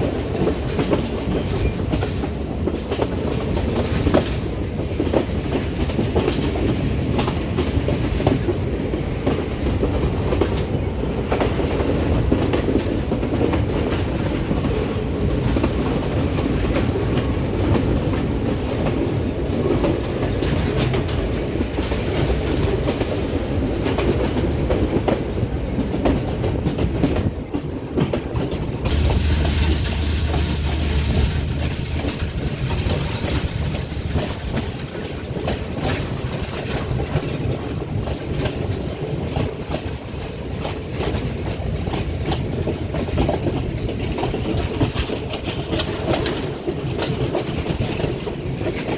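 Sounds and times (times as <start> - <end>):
train carriage rumble: 0.0 - 48.9
wheels clacking over rail joints: 0.0 - 48.9.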